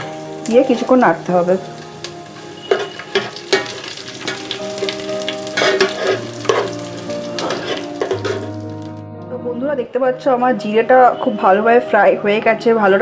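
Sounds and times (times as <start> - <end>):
spices sizzling in hot oil: 0.0 - 9.0
spoon scraping a pot: 2.7 - 3.7, 5.5 - 6.8, 7.4 - 8.6.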